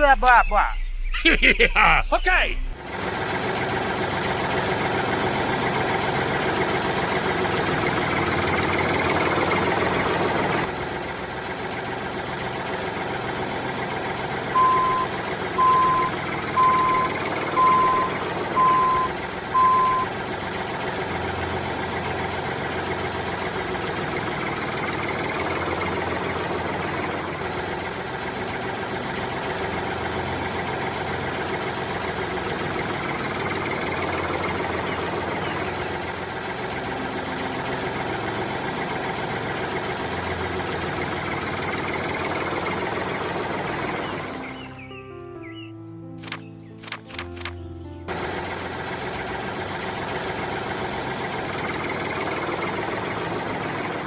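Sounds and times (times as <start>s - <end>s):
reversing alarm beeping: 0.0s - 2.8s, 14.5s - 20.2s
vehicle engine running: 0.0s - 54.0s.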